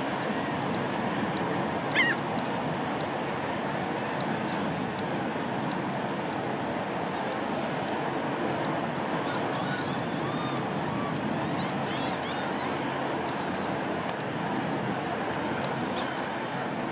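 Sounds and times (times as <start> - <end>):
wind and water rushing: 0.0 - 16.9
faint high ticks: 0.7 - 3.2, 4.2 - 6.5, 8.6 - 11.8, 14.1 - 14.3.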